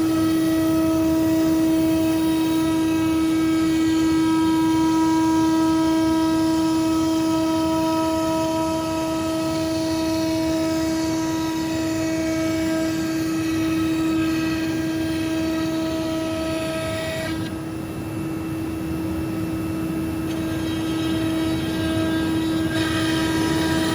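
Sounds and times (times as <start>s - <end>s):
router spindle whine: 0.0s - 23.9s
hiss of cutting plywood: 20.3s - 23.9s.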